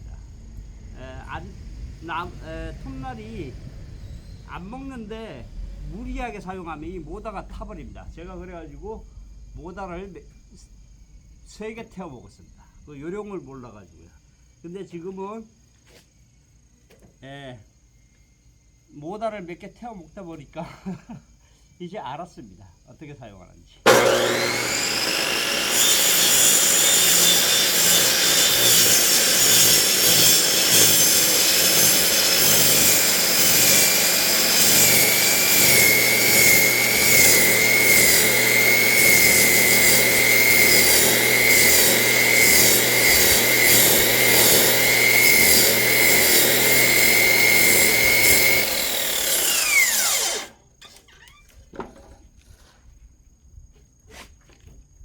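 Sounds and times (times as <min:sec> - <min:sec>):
saw motor winding down: 0:01.0 - 0:08.4, 0:23.9 - 0:50.6
electric saw cutting log: 0:23.9 - 0:50.6.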